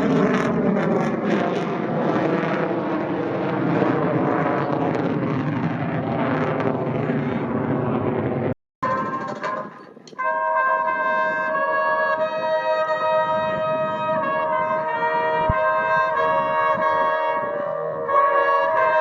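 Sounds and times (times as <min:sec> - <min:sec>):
brass music with long chords: 0:08.8 - 0:19.0.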